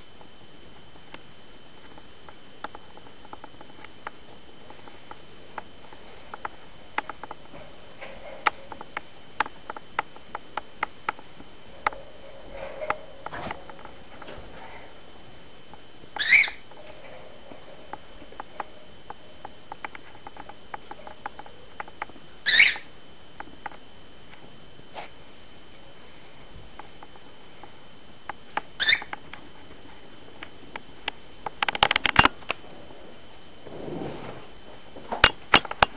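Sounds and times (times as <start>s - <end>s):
scratchy rustle: 33.6s - 34.7s.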